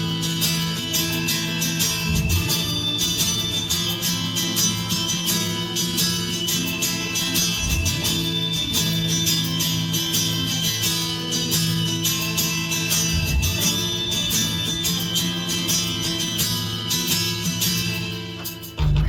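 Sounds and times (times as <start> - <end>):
steady bass: 0.0 - 5.1, 18.6 - 19.0
strummed guitar chords: 0.0 - 19.0.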